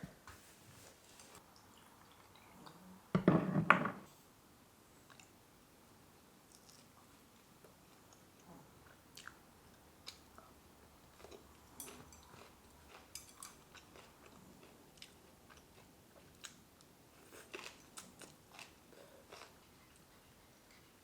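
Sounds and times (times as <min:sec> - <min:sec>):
faint chewing of food: 0:01.2 - 0:03.0, 0:05.0 - 0:05.4, 0:06.5 - 0:21.0.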